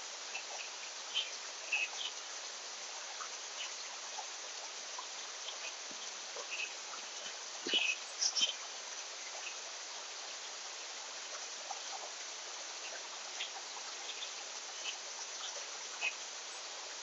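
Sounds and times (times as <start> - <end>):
insect chorus buzzing: 0.0 - 17.0
faint bird chirps: 0.3 - 2.2, 5.0 - 8.7.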